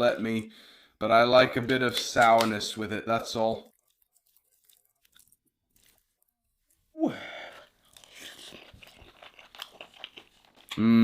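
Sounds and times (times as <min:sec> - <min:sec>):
person chewing food: 0:03.6 - 0:10.8.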